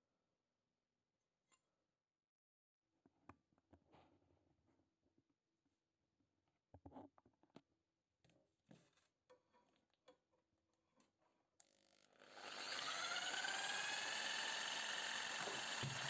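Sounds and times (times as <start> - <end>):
power tool motor whining: 11.9 - 16.0.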